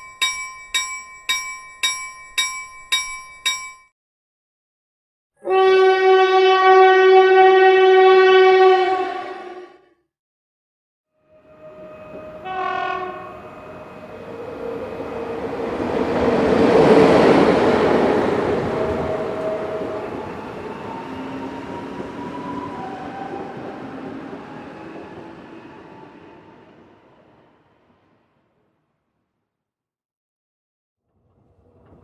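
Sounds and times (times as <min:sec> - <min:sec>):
train horn blast: 0:05.4 - 0:09.6, 0:11.4 - 0:14.1
train rumbling past: 0:11.3 - 0:28.3.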